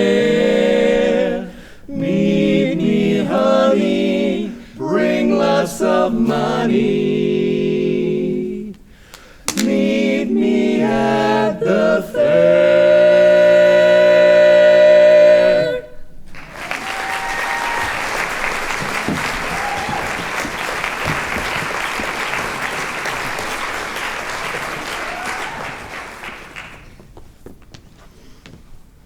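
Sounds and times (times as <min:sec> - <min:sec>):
vocal quartet holding a chord: 0:00.0 - 0:26.8
audience cheering: 0:16.3 - 0:26.9
audience applauding: 0:16.3 - 0:27.1.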